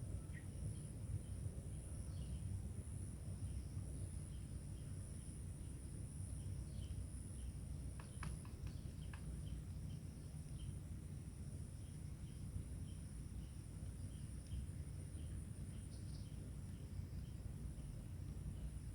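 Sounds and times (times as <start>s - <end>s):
faint insect chirps: 0.1s - 18.9s
insects droning: 0.2s - 18.9s.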